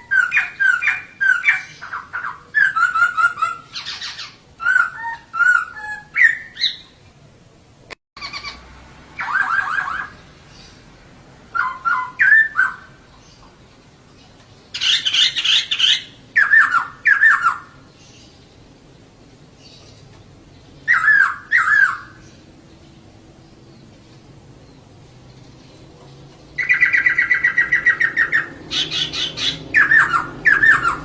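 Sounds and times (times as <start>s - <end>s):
bird calling in short phrases: 20.8s - 22.2s.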